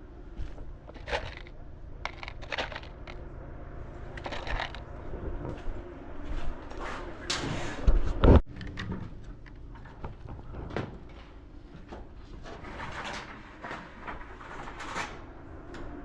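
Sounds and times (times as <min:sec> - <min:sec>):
knocks clicks and rattles of handling: 0:00.8 - 0:03.2, 0:04.1 - 0:04.9, 0:08.5 - 0:15.2.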